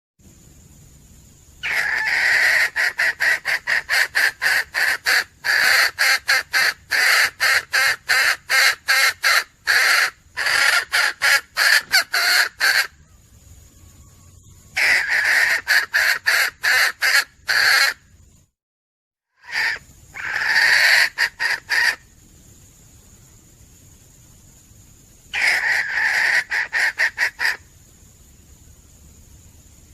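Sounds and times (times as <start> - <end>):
hen clucking: 1.6 - 13.2, 14.8 - 18.0, 19.4 - 22.0, 25.4 - 27.6.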